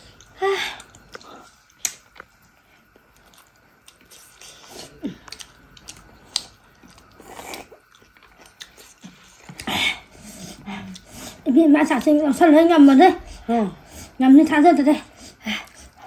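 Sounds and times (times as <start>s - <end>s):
person chewing food: 0.1s - 11.4s.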